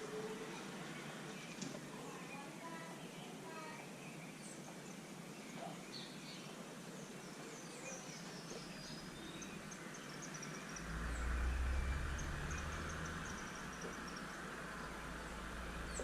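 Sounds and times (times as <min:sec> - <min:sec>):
small birds chirping: 0:00.0 - 0:16.0
low rumble: 0:10.7 - 0:16.0.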